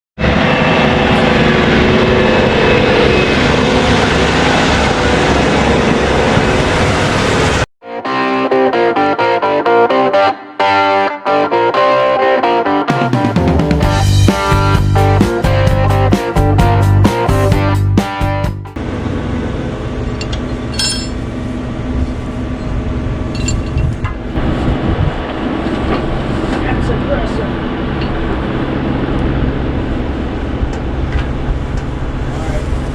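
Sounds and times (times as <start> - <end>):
tractor diesel engine running: 18.8 - 32.9
metallic clink: 20.2 - 21.2, 23.3 - 23.9.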